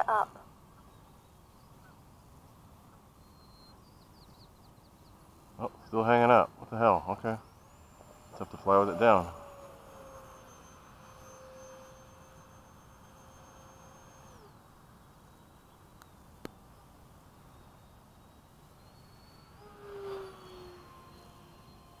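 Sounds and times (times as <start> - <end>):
electric ducted fans whining: 0.0 - 22.0.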